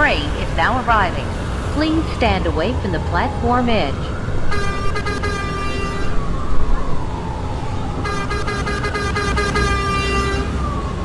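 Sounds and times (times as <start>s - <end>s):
train low rumble: 0.0s - 11.0s
subway train horn: 3.6s - 6.8s, 8.0s - 11.0s.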